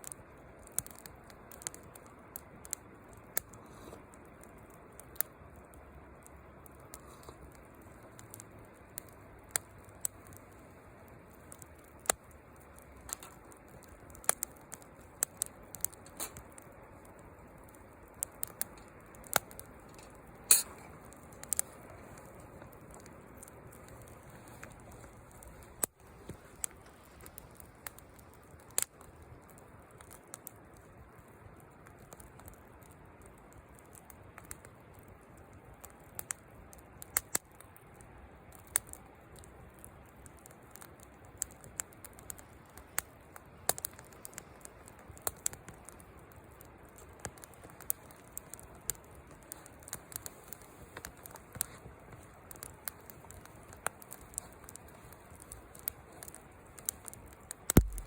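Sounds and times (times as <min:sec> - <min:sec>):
fire hissing: 0:00.0 - 0:34.8, 0:38.1 - 0:58.0
wood fire crackling and popping: 0:00.0 - 0:58.0.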